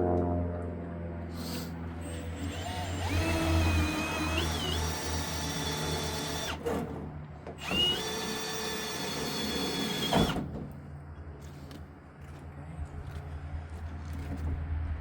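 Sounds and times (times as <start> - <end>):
power drill boring metal: 2.0 - 6.8, 7.6 - 10.4.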